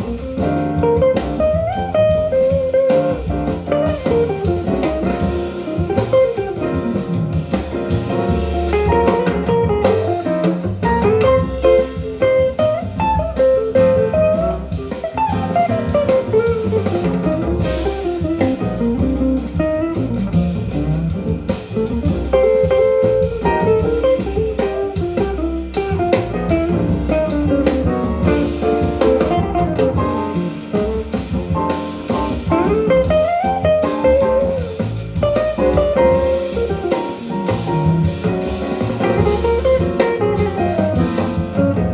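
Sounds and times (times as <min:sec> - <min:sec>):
guitar melody: 0:00.0 - 0:07.5, 0:08.2 - 0:41.9
bass: 0:00.0 - 0:41.9
drum kit: 0:00.0 - 0:41.9
jazz over loudspeakers: 0:00.0 - 0:41.9.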